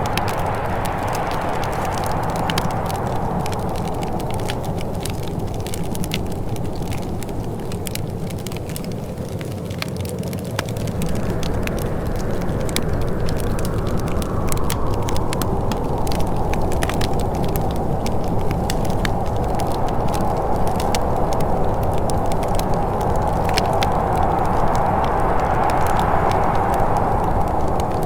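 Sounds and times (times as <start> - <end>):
low rushing sound: 0.0 - 5.6
wood fire crackling and popping: 0.0 - 28.0.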